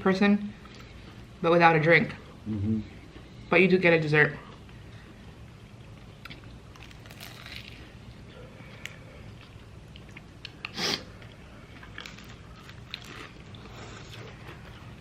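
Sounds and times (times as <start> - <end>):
person chewing crunchy food: 6.2 - 15.0.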